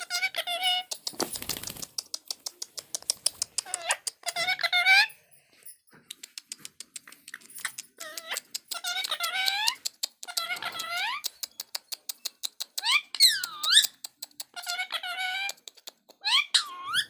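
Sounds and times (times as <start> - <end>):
parrot squawking: 0.0 - 0.9, 3.6 - 5.1, 14.5 - 15.6, 16.2 - 17.0
quick dry clicks: 0.9 - 4.3.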